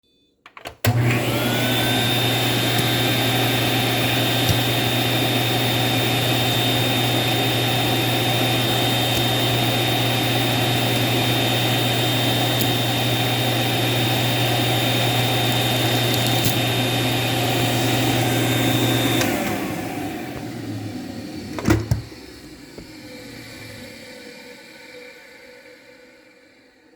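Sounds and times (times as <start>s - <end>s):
vacuum cleaner switch click: 0.5s - 11.2s, 12.1s - 20.5s
vacuum cleaner motor whine: 0.8s - 26.9s.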